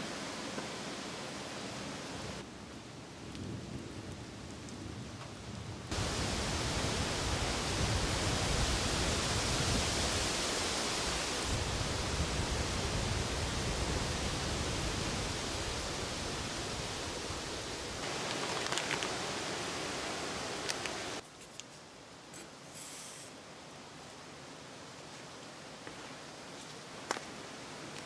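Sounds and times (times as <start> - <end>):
heavy rain hissing: 0.0 - 2.4, 5.9 - 21.2, 22.7 - 23.5
wind gusting: 5.9 - 21.2.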